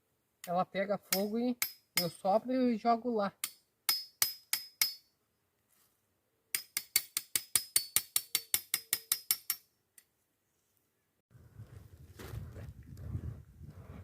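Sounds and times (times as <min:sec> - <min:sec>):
knife striking steel machete: 0:01.1 - 0:02.2, 0:03.4 - 0:05.1, 0:06.5 - 0:09.6.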